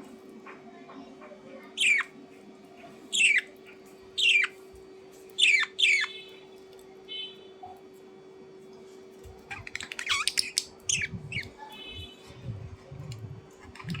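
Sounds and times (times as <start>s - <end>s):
bird chirping and squawking: 1.8s - 2.1s, 3.1s - 4.6s, 5.4s - 6.3s, 9.5s - 12.2s, 13.6s - 14.0s.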